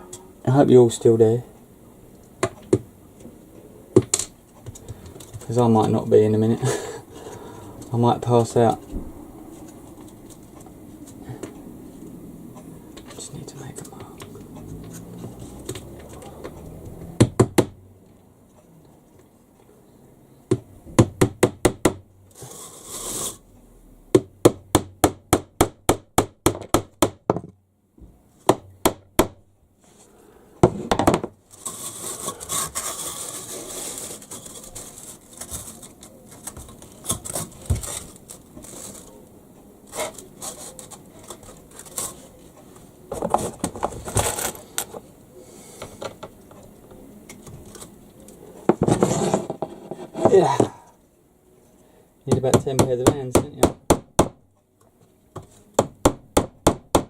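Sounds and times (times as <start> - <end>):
hammer tapping nails into wood: 15.7 - 17.8, 24.2 - 27.5, 28.5 - 29.4, 52.3 - 54.4, 55.8 - 57.0
wood rubbing and scraping: 22.3 - 23.4, 30.7 - 45.1, 47.5 - 51.0.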